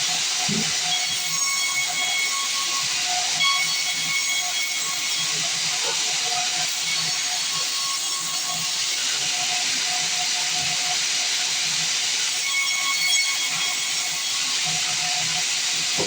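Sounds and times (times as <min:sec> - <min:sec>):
band saw cutting log: 0:00.0 - 0:02.6.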